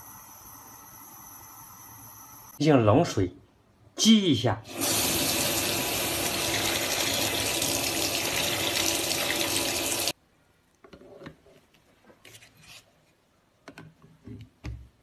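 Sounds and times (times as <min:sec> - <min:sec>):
tap water running onto metal: 0:04.7 - 0:10.1.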